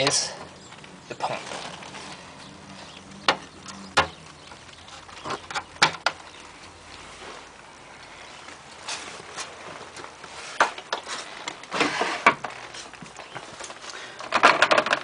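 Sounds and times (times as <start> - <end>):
plastic clicks and knocks: 3.2 - 4.6, 5.2 - 6.2, 10.6 - 15.0.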